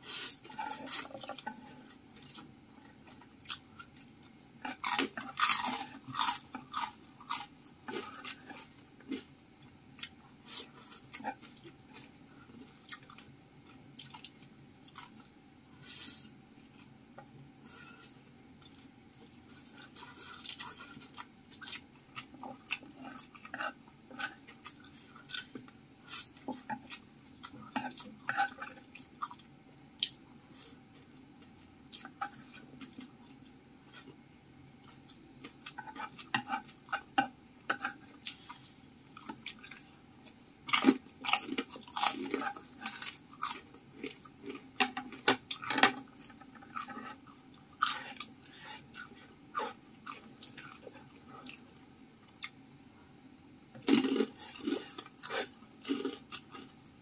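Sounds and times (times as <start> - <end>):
chopsticks clicking and scraping: 17.7 - 29.1, 34.8 - 39.9, 40.7 - 47.2
chewing noodles: 53.8 - 56.8.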